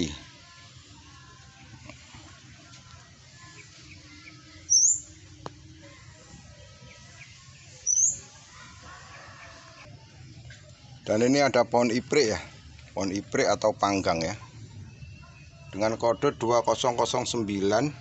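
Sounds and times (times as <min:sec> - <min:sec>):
bird high upward-sweeping chirps: 0:03.2 - 0:10.4.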